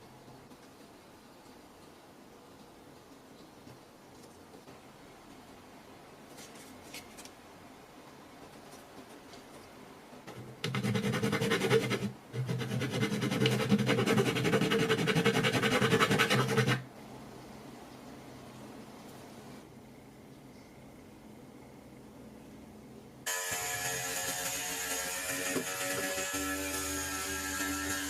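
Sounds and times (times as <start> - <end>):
electric power tool motor: 23.3 - 28.0.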